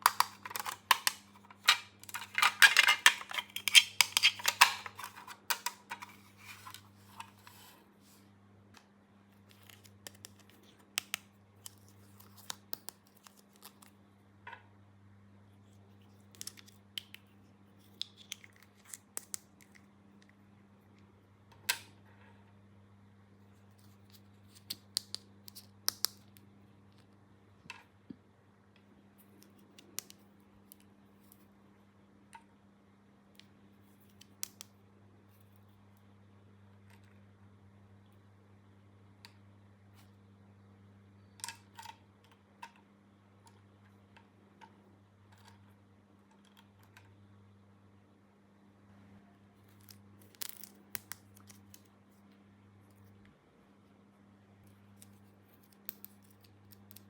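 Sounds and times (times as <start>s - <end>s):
plastic toy pieces clicking: 0.1s - 6.0s.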